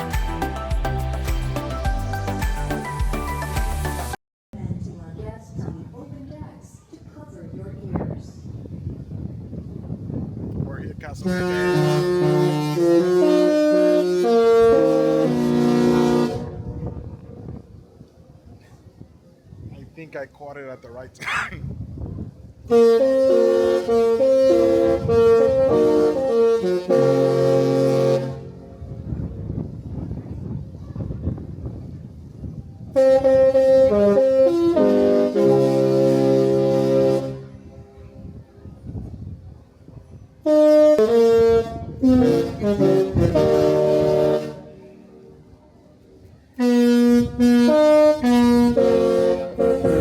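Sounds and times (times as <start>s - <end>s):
musical ship horn tune: 11.2s - 17.0s, 22.7s - 28.8s, 33.0s - 37.6s, 40.4s - 44.9s, 46.6s - 50.0s.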